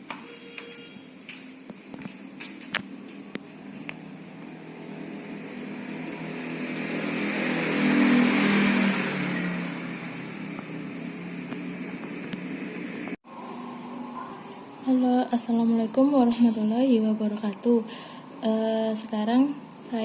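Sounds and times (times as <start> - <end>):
motor vehicle passing by: 3.5 - 14.9.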